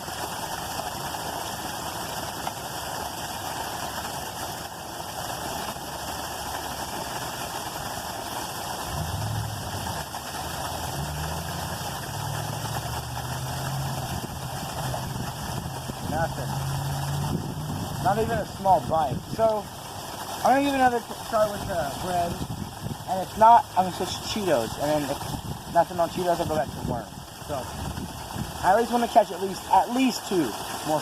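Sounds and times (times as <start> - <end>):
engine hum shifting pitch: 8.9 - 18.2.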